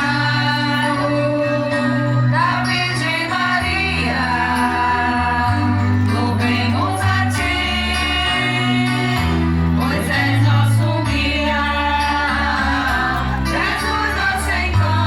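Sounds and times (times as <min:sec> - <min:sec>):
sustained bass notes: 0:00.0 - 0:15.0
voices singing worship music: 0:00.0 - 0:15.0.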